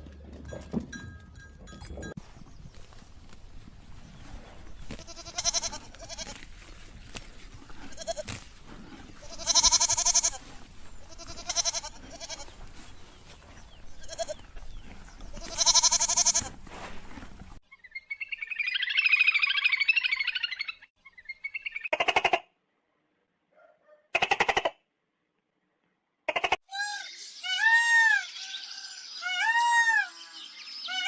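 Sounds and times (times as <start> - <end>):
livestock bleating: 4.9 - 6.4, 7.8 - 8.3, 9.2 - 12.5, 14.0 - 14.5, 15.3 - 16.5.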